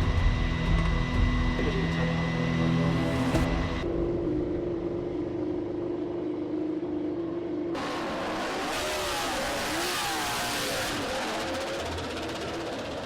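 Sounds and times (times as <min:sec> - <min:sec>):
race motorcycle engines revving: 0:05.6 - 0:13.0.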